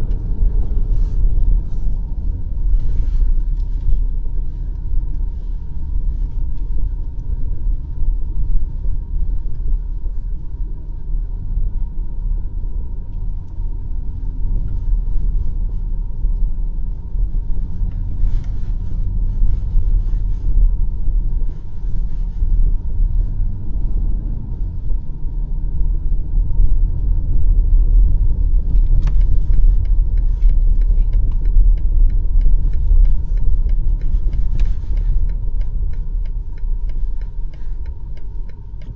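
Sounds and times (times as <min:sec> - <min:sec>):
car driving low rumble: 0:00.0 - 0:38.9
faint regular ticking: 0:28.9 - 0:38.9.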